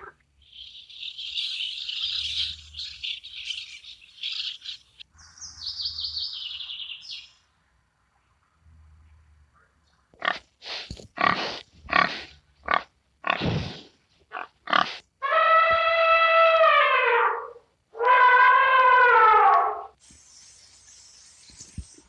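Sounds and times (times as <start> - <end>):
pig grunting and squealing: 11.2 - 19.8
pig long brassy call: 14.4 - 20.0.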